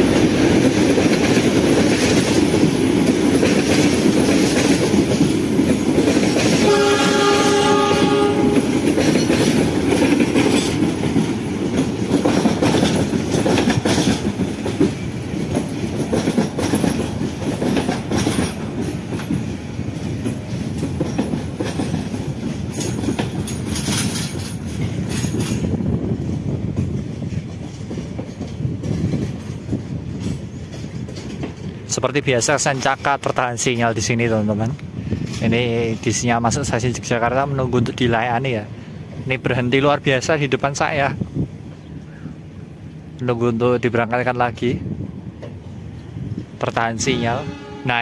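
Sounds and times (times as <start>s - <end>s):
train wheels clattering over rail joints: 0.0s - 37.0s.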